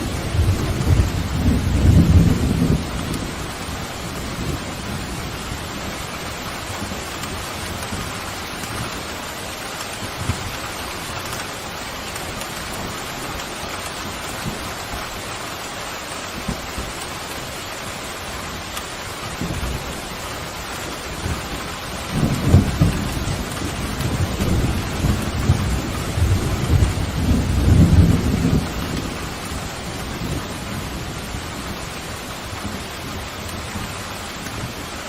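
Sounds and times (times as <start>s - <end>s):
low thunder rumble: 0.0s - 9.0s, 21.1s - 34.9s
pouring rain: 0.0s - 35.0s
raindrops ticking: 0.0s - 35.0s.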